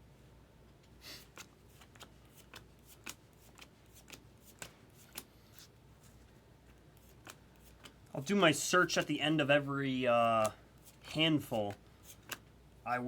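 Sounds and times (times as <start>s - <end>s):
cards being flicked: 1.2s - 5.7s, 7.0s - 8.0s, 10.2s - 12.5s
card rustle: 1.2s - 8.0s.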